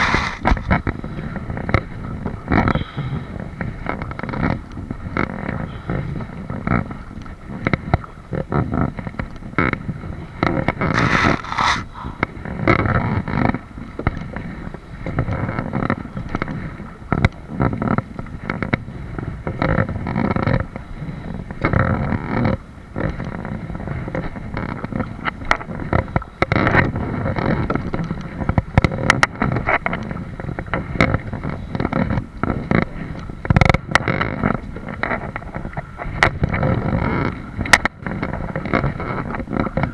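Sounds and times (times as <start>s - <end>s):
microphone rumble: 0.0s - 2.5s.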